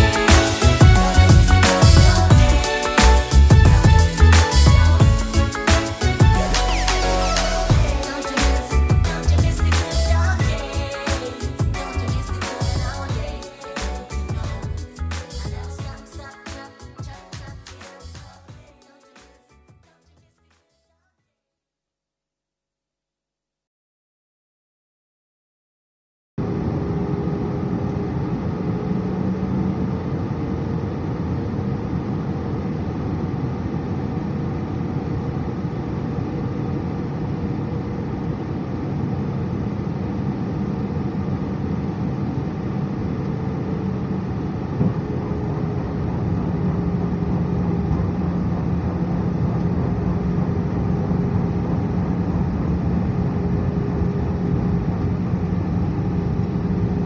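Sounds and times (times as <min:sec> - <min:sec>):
airliner cabin engine noise: 0:26.4 - 0:57.0.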